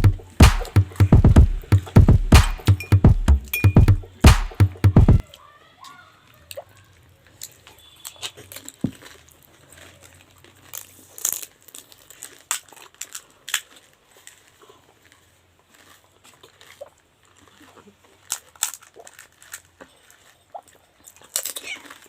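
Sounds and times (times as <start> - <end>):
crisp snacks crunching: 8.4 - 22.0.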